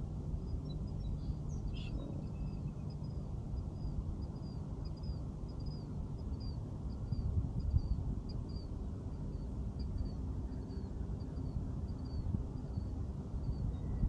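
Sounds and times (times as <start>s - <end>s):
steady low rumble: 0.0s - 14.0s
bird chirping: 0.6s - 3.2s.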